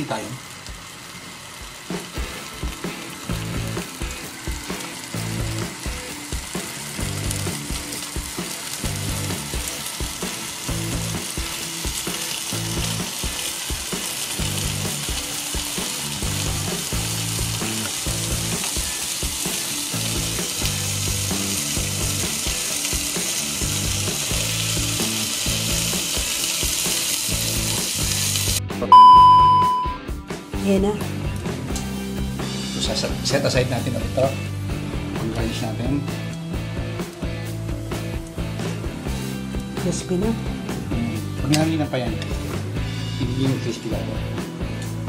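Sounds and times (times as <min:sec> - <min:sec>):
bacon sizzling in a pan: 0:00.0 - 0:28.6, 0:30.3 - 0:45.0
test-tone beep: 0:28.9 - 0:30.0.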